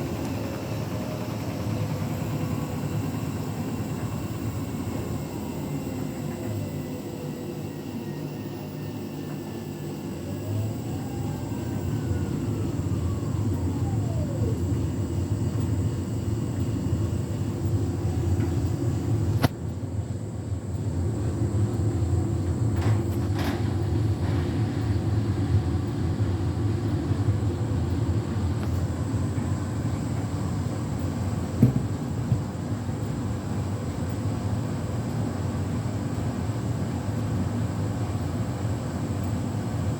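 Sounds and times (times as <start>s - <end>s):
motor whine: 0.0s - 19.5s
washing machine spinning: 0.0s - 39.9s.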